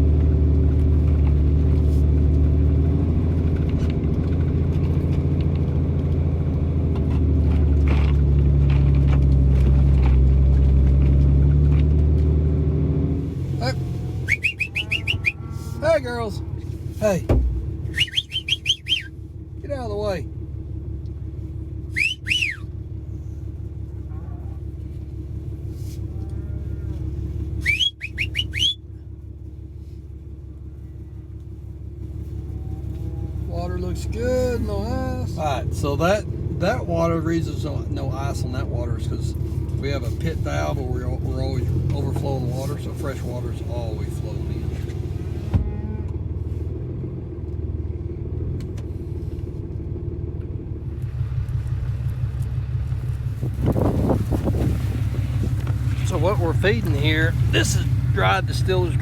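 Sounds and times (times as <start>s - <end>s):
vehicle engine running: 0.0s - 59.0s
person whistling: 14.3s - 15.4s, 17.9s - 19.1s, 21.9s - 22.7s, 27.6s - 28.8s.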